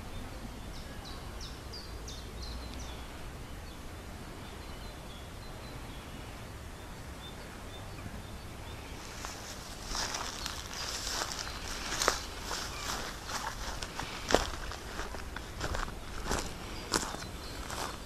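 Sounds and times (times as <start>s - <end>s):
songbird chirping: 0.0s - 18.0s
footsteps rustling through dry grass: 8.8s - 18.0s.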